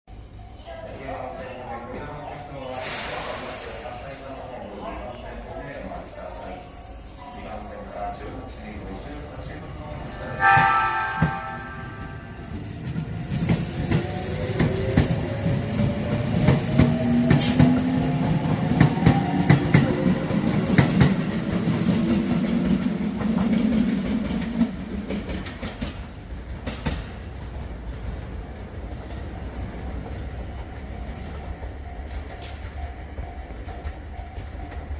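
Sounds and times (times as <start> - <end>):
train rumble: 0.2 - 34.9
brief tone: 10.2 - 12.5
wheels clacking on rail joints: 18.8 - 34.9.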